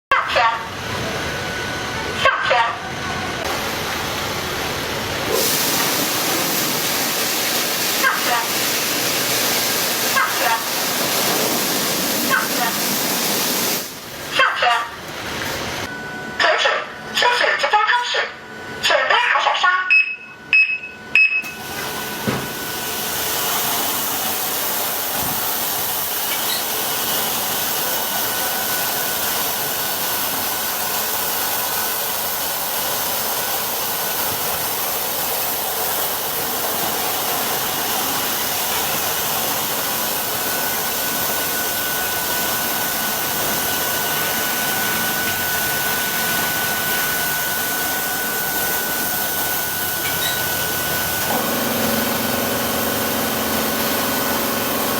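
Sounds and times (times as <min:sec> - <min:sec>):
thin steady whine: 0:00.3 - 0:54.9
car wash equipment hissing: 0:00.7 - 0:16.0, 0:21.4 - 0:54.9.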